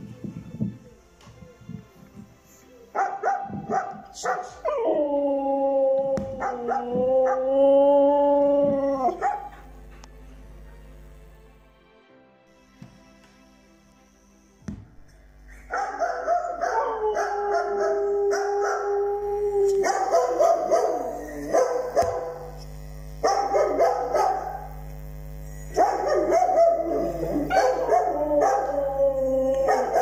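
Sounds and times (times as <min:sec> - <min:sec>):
dog howling: 0:03.0 - 0:09.6, 0:15.8 - 0:22.6, 0:25.9 - 0:30.0.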